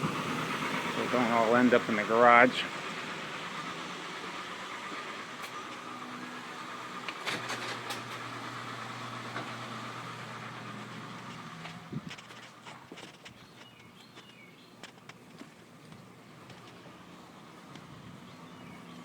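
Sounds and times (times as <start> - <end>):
engine knock: 0.0 - 5.4
car engine idling: 0.0 - 19.0.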